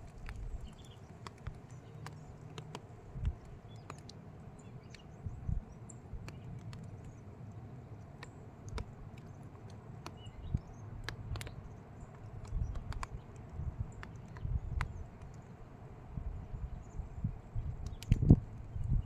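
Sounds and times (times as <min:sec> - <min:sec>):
sharp clicks and ticks: 0:00.0 - 0:04.2, 0:06.2 - 0:07.2, 0:08.2 - 0:15.5, 0:17.8 - 0:18.4.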